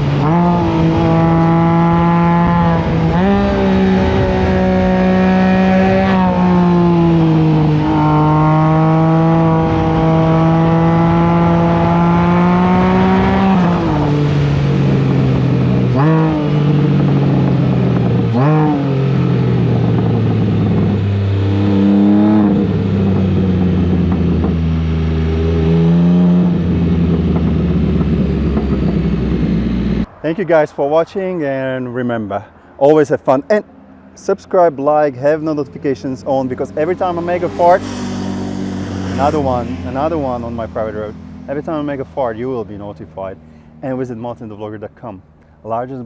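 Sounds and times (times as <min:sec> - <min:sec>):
motorcycle engine accelerating: 0:00.0 - 0:31.8, 0:32.8 - 0:45.3
wind rushing: 0:26.4 - 0:33.8, 0:36.7 - 0:42.0
engine rev spikes: 0:35.9 - 0:43.9.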